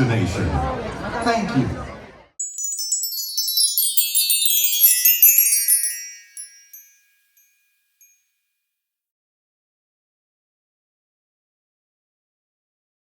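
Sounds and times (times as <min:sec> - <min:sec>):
magical chime shower: 0:02.4 - 0:08.2.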